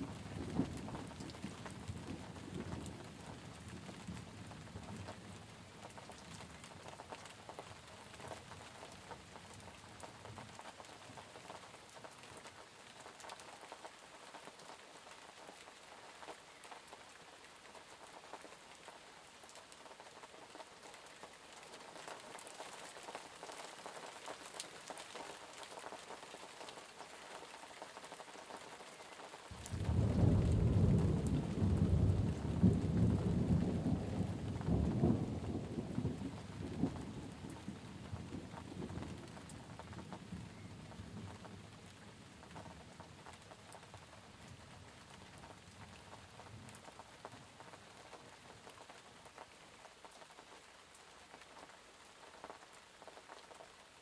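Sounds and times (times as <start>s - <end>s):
low rumble of thunder: 0.0s - 6.6s, 29.6s - 47.7s
patter of raindrops: 0.0s - 54.0s
steady rain falling: 0.0s - 54.0s.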